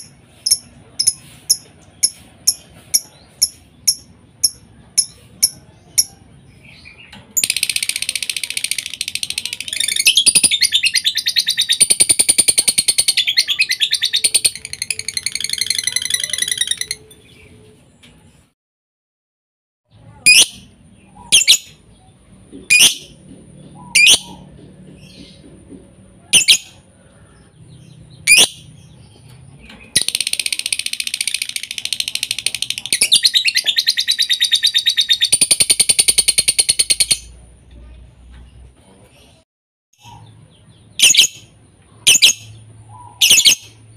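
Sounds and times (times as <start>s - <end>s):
bird fast chattering trill: 20.2s - 21.8s, 26.3s - 26.7s, 40.9s - 41.4s, 42.1s - 43.8s.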